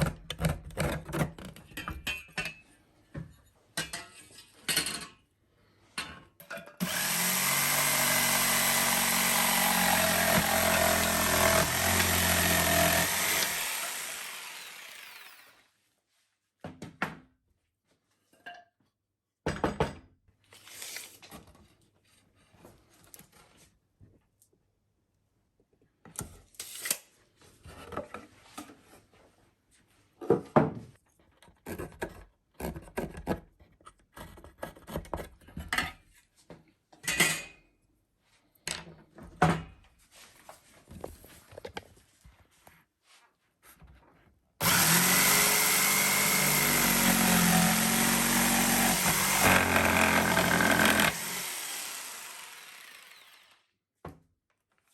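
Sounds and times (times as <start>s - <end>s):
power tool winding down: 6.8s - 15.6s, 44.6s - 53.7s.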